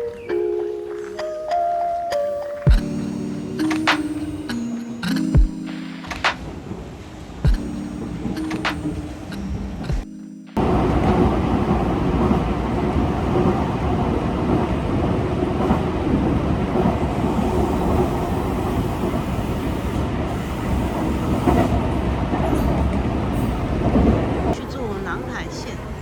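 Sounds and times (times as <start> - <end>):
train rumbling on rails: 6.0 - 9.9, 10.6 - 26.0.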